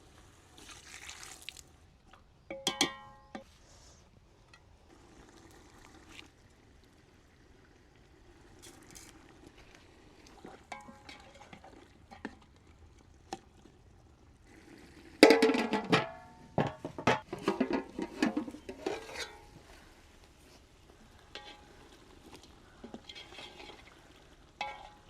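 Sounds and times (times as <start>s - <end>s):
spoon clattering against a pot: 2.5s - 3.4s, 24.6s - 25.0s.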